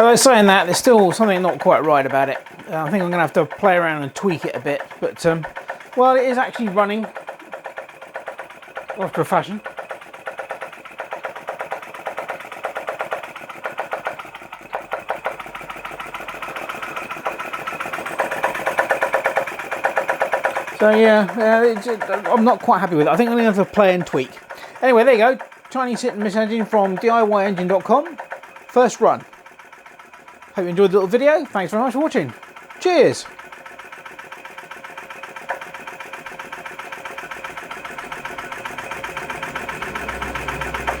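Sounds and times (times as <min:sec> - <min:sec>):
small engine rapid clatter: 0:00.0 - 0:41.0.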